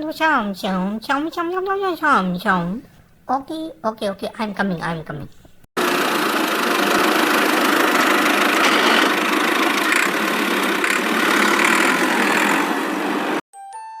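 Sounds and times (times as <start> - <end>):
motor running: 5.8 - 13.4.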